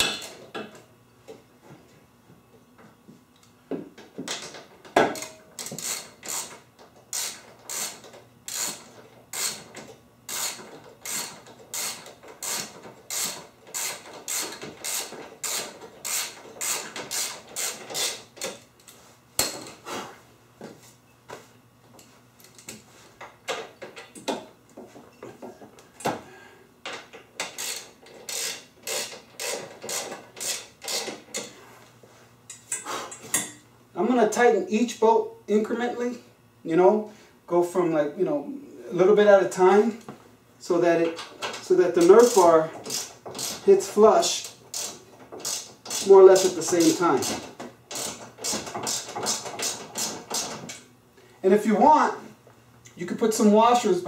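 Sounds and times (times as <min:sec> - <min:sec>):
ratchet wrench clicking: 0:05.2 - 0:09.7, 0:10.3 - 0:18.6, 0:27.4 - 0:31.5, 0:42.1 - 0:43.6, 0:44.7 - 0:50.5.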